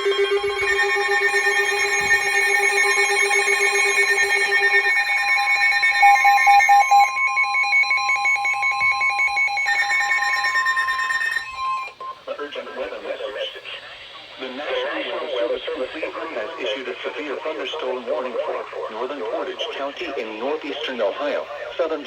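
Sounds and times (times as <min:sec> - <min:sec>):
steady alert tone: 0:00.0 - 0:12.0
overlapping electronic alarm beeps: 0:00.0 - 0:12.2.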